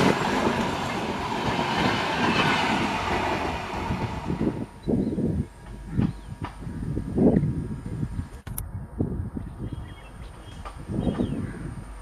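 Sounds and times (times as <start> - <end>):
distant train rumbling: 0.0 - 8.2.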